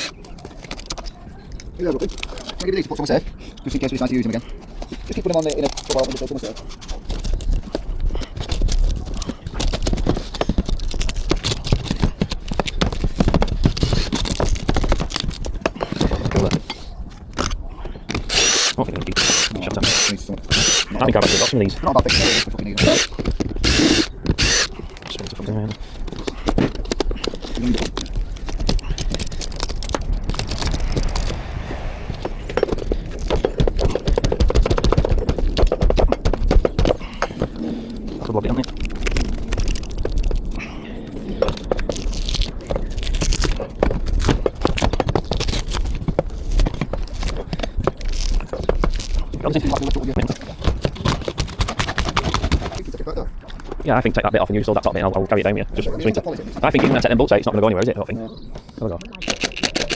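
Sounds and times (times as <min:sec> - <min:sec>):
knocks and scrapes of roof parts: 0:00.0 - 0:21.3, 0:22.1 - 0:40.6, 0:41.3 - 0:52.9
roof parts knocking and rattling: 0:32.6 - 0:37.6.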